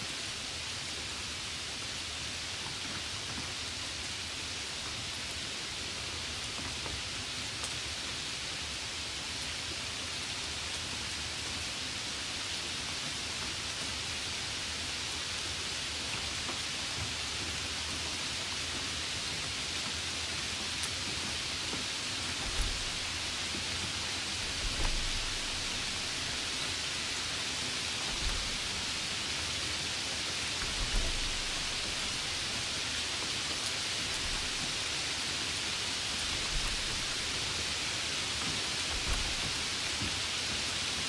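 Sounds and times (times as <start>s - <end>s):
steady hiss: 0.0s - 41.0s
faint ticks: 20.8s - 29.4s, 30.3s - 35.2s
soft low bump: 22.4s - 27.0s, 28.0s - 29.1s, 30.6s - 32.6s, 34.1s - 34.8s.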